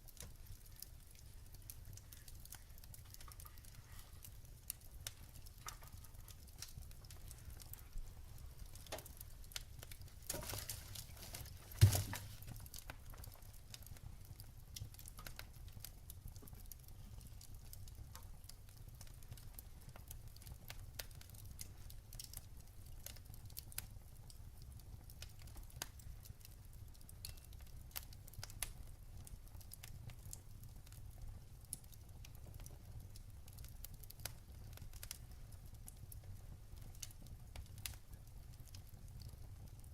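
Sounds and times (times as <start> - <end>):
fire rumbling and crackling: 0.0 - 39.9
loud pop of fire: 11.7 - 12.4.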